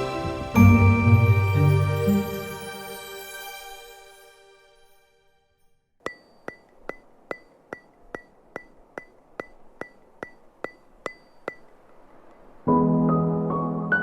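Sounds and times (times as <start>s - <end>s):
steady ticking clicks with ring: 6.0s - 12.5s.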